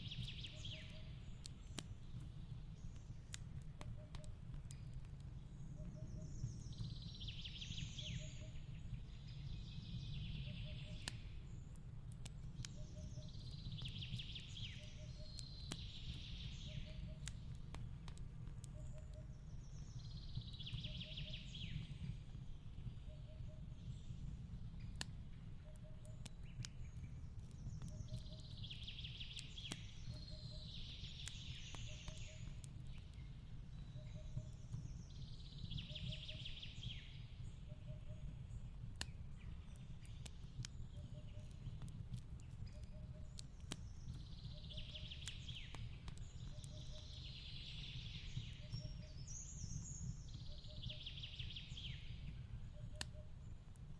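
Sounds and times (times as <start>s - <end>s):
bird song: 0.0s - 53.9s
fireplace crackling: 11.0s - 20.8s, 21.4s - 36.5s, 37.1s - 50.5s.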